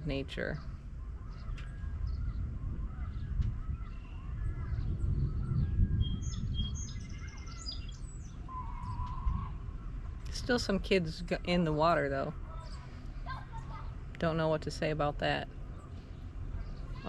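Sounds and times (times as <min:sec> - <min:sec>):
birds chirping: 0:00.0 - 0:17.0
low rumbling noise: 0:00.0 - 0:17.0.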